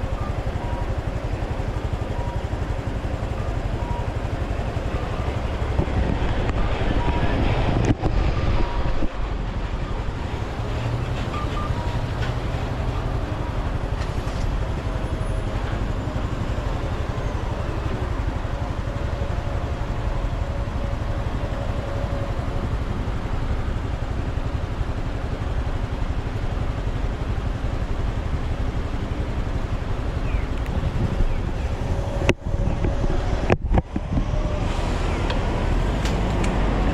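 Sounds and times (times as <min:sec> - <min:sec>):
motorcycle engine running: 0:00.0 - 0:34.6
wind rushing over microphone: 0:04.7 - 0:11.7, 0:29.6 - 0:36.9.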